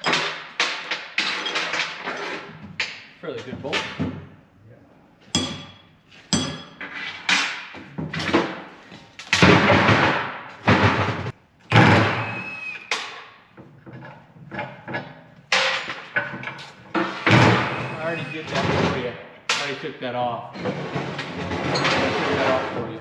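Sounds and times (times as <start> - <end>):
metal clattering: 0.0 - 4.2, 13.0 - 19.8, 20.6 - 23.0
heavy metal clanks: 5.4 - 8.6, 14.7 - 19.8.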